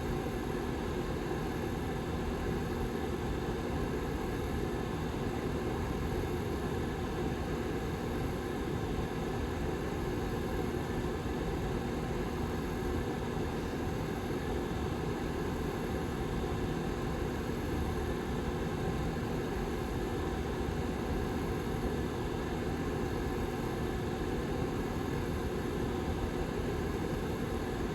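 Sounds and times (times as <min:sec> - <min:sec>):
heater fan running: 0:00.0 - 0:27.9.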